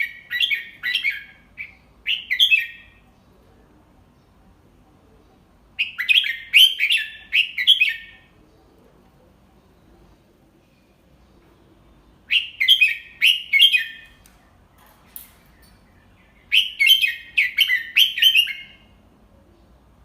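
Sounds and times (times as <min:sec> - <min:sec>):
faint click: 0:14.0 - 0:15.9.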